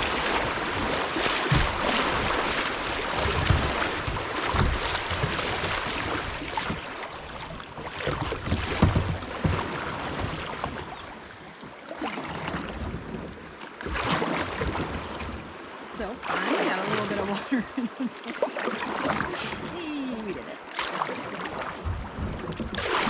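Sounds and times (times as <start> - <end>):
paddle strokes splashing: 0.0 - 23.0
water rushing against boat: 0.0 - 23.0.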